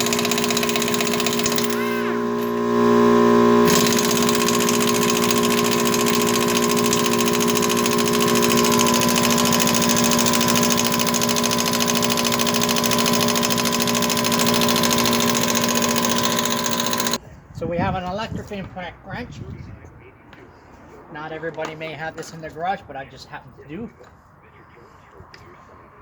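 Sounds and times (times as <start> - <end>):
impact wrench hammering: 0.0 - 3.0, 3.6 - 17.2.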